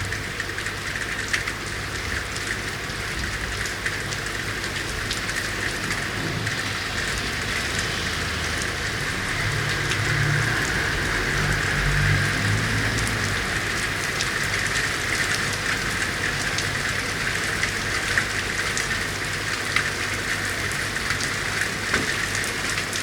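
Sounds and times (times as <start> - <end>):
rain falling on city surfaces: 0.0 - 23.0
drops and drips striking: 21.1 - 23.0.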